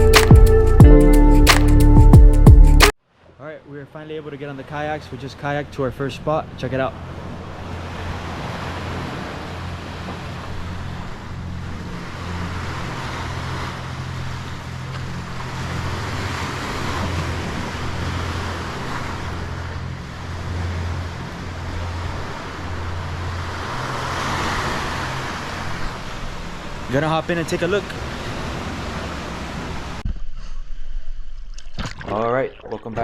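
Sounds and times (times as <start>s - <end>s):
sea washing: 6.4s - 30.0s
wind rumbling on microphone: 6.9s - 26.9s.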